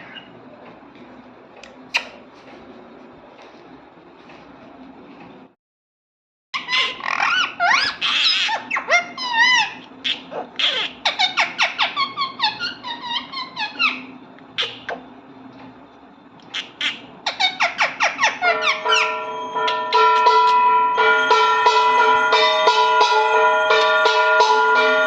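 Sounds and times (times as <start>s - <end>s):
parrot whistling and chirping: 6.6s - 15.0s, 16.5s - 20.6s.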